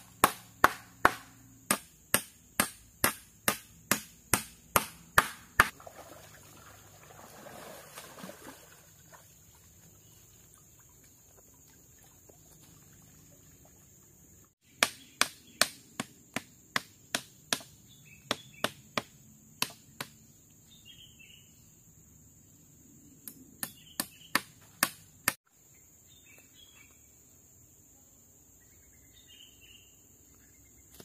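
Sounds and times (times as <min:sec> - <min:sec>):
hand tool striking: 0:00.0 - 0:05.7.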